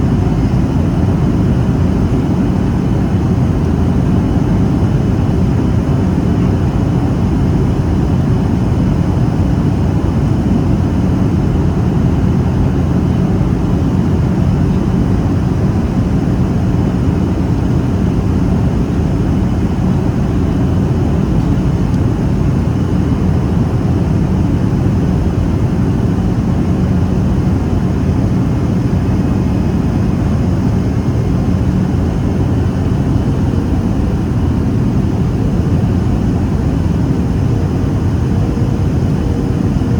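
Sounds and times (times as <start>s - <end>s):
airplane cabin engine rush: 0.0s - 39.9s
faint steady hum: 0.0s - 39.9s.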